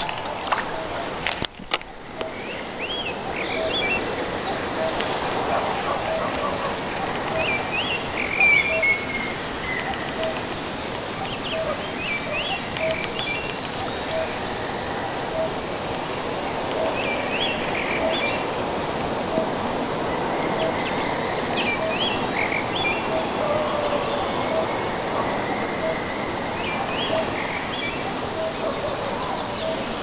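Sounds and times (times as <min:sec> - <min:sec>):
background hiss: 0:00.0 - 0:30.0
birds singing: 0:00.0 - 0:30.0.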